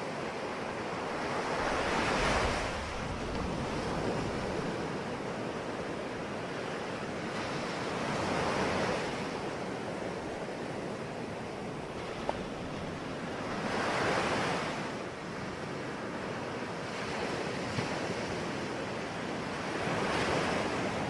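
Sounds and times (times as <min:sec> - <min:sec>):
sea waves breaking on shore: 0:00.0 - 0:21.0
wind on microphone: 0:01.1 - 0:06.3.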